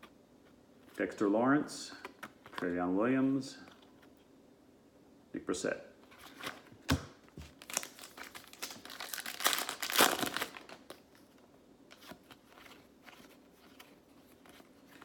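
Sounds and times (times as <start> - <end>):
card pack wrapper tearing and crinkling: 7.5 - 11.0.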